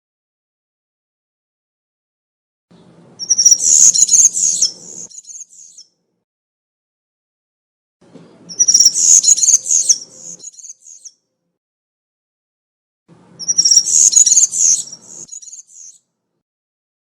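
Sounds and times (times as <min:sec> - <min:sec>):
bird singing jingling song: 0:02.8 - 0:05.9, 0:08.5 - 0:11.2, 0:13.4 - 0:16.0.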